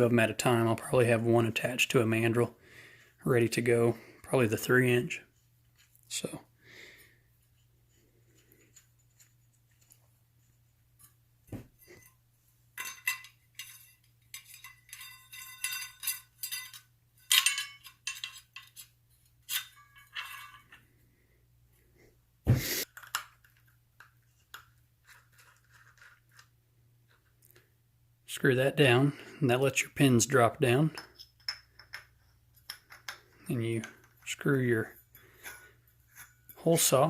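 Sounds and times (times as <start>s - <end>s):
metal hole saws clinking: 12.8s - 18.8s.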